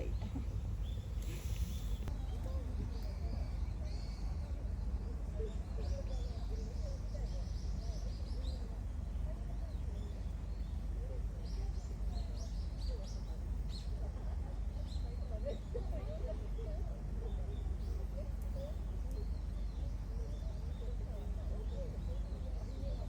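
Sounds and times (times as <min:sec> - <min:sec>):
steady low rumble: 0:00.0 - 0:15.2
murmur of distant voices: 0:00.0 - 0:23.0
small birds chirping: 0:00.0 - 0:23.0.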